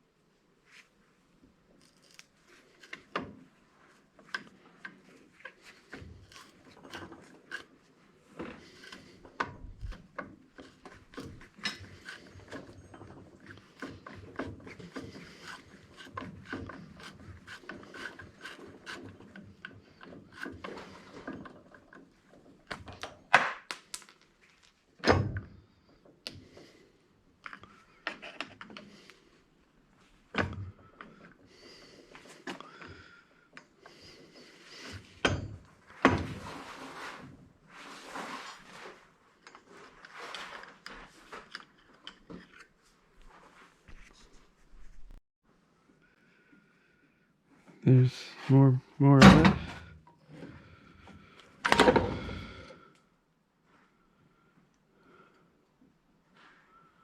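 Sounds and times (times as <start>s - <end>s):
tools scraping and tapping metal: 4.2s - 23.1s, 39.4s - 42.8s.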